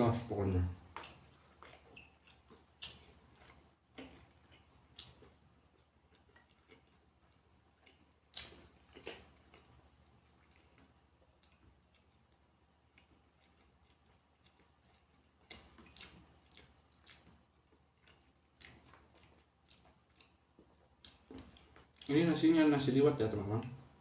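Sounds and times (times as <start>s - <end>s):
person chewing food: 0.8s - 22.4s.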